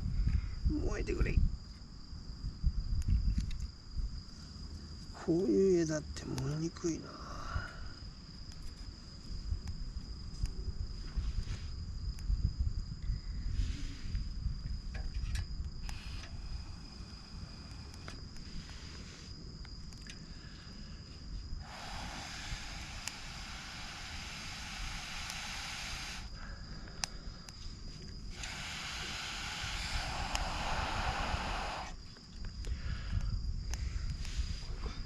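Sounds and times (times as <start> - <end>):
insect trill: 0.0 - 35.0
blowing air into campfire: 7.2 - 35.0.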